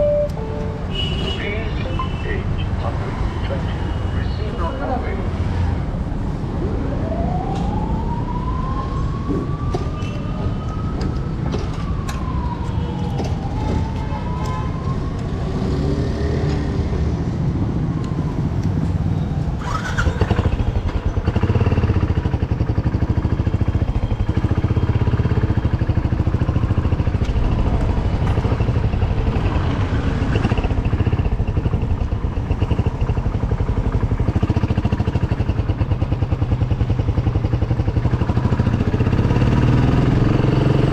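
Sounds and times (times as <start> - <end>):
siren-like wail: 6.5 - 15.9, 17.7 - 22.1
motorcycle engine running: 30.4 - 40.9.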